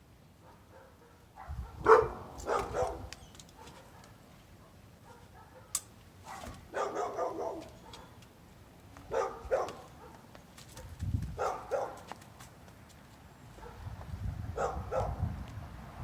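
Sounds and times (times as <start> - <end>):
dog barking: 0.4 - 8.2, 9.1 - 12.1, 13.6 - 13.8, 14.6 - 15.2.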